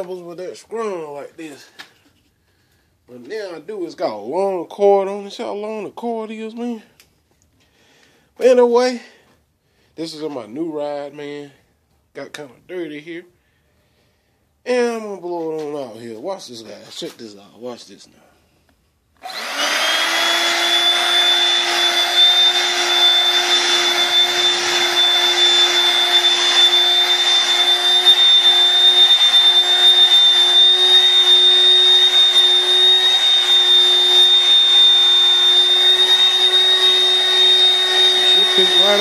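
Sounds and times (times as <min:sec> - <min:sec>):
vacuum cleaner motor whining: 0:19.2 - 0:39.0.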